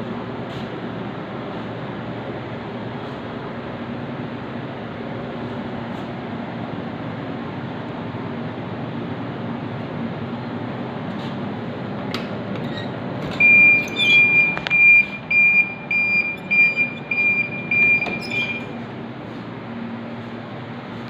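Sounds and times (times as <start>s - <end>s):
steady machine hum: 0.0s - 21.0s
high electronic beeps: 13.4s - 18.7s.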